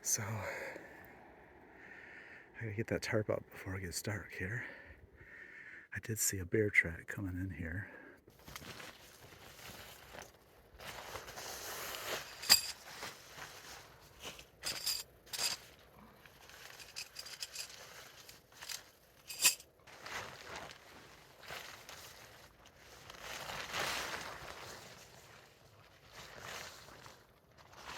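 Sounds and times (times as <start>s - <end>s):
nylon tarp rustling: 8.3s - 27.9s.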